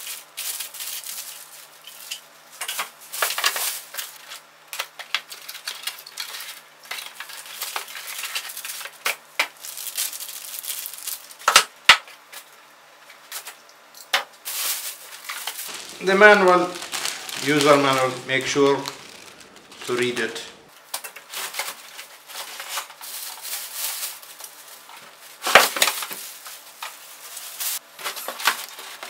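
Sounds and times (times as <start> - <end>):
packaging rustling: 9.5 - 11.4, 14.5 - 20.7.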